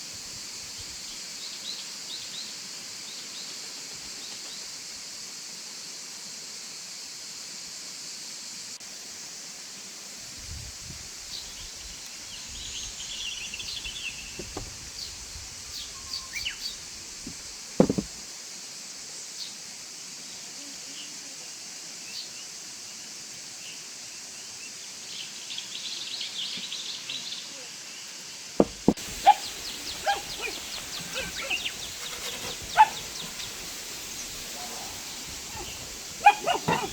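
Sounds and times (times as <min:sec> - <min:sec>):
high hiss of outdoor ambience: 0:00.0 - 0:36.9
sharp knock: 0:17.8 - 0:18.1, 0:28.6 - 0:29.0
small birds chirping: 0:28.6 - 0:36.9.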